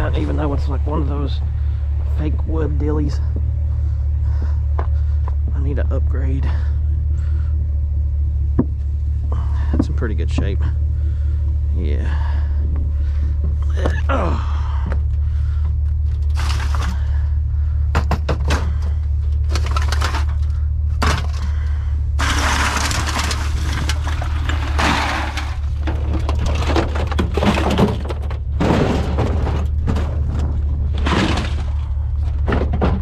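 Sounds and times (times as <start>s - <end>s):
steady low hum: 0.0s - 33.0s
clattering and knocking of junk: 8.5s - 10.8s, 12.2s - 33.0s
rustling of items: 15.0s - 17.3s, 18.8s - 33.0s.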